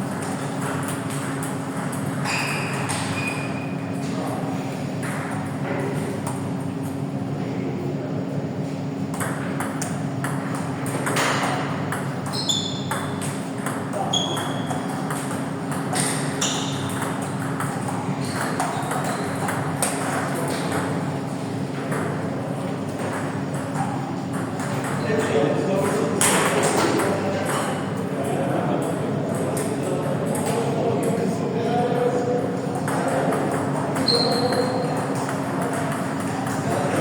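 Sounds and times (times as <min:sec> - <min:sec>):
table tennis balls clicking: 0:09.1 - 0:21.1, 0:32.7 - 0:36.9
short high squeaks: 0:12.3 - 0:12.9, 0:14.1 - 0:14.8, 0:34.0 - 0:35.0.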